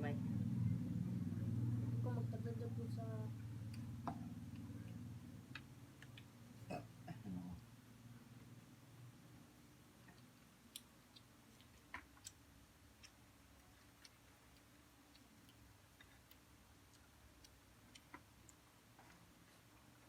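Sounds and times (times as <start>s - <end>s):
faint eating sounds: 0.2s - 20.0s.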